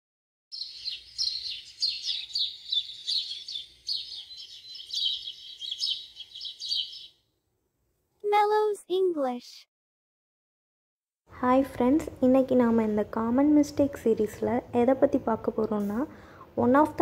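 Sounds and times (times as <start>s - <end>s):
bird chirping: 0.5s - 7.3s.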